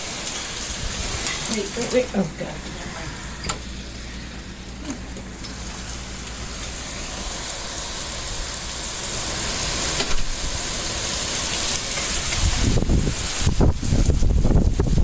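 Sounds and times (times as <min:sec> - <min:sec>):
heavy rain pouring: 0:00.0 - 0:15.0
wind rumbling on microphone: 0:08.4 - 0:15.0.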